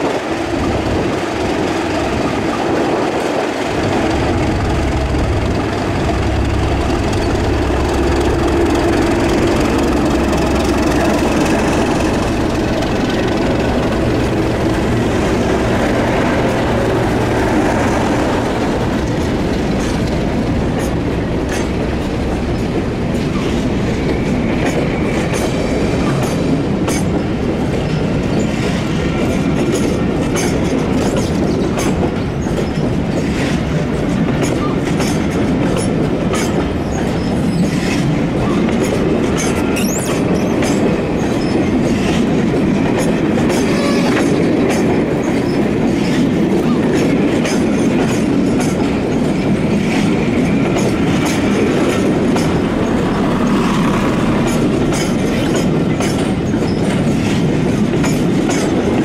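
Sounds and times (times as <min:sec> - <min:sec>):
train running on rails: 0:00.0 - 0:59.0
wheels clicking over rail joints: 0:06.9 - 0:59.0.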